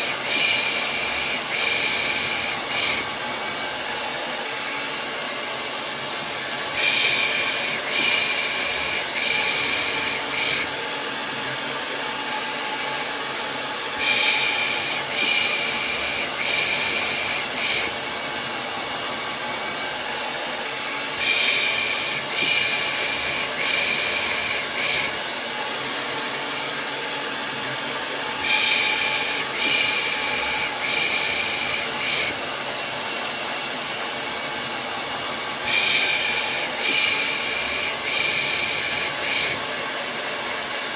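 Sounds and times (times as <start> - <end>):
hair dryer blowing: 0.0 - 40.9.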